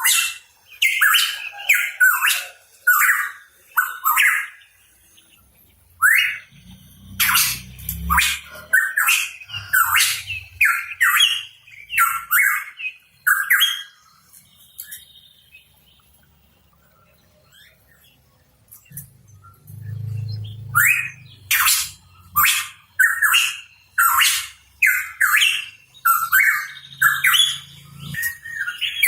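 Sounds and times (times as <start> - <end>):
bird harsh rising calls: 6.0 - 13.9, 19.9 - 29.0.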